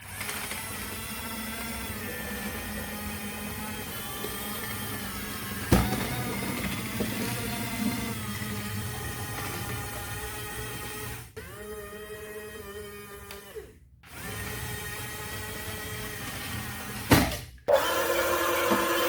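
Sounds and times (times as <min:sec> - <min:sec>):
electric motor whining: 0:00.0 - 0:11.8.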